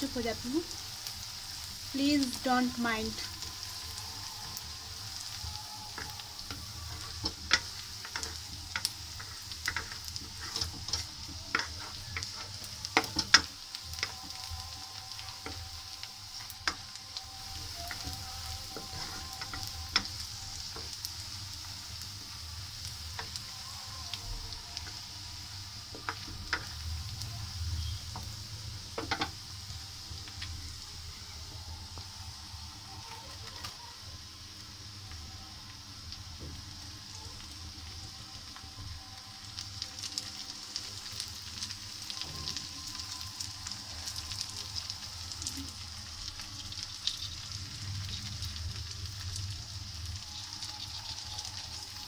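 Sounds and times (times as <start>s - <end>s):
onions sizzling in hot oil: 0.0s - 52.0s
wooden spoon scraping a wok: 5.9s - 23.5s.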